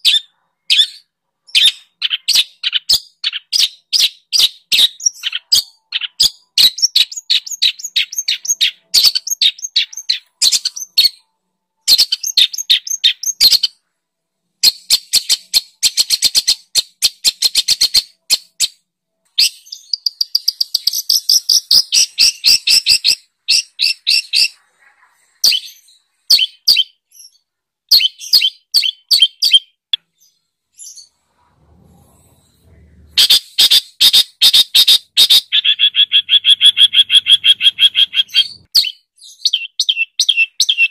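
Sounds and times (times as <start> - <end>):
songbird chirps and trills: 0.0 - 13.9, 14.6 - 31.2.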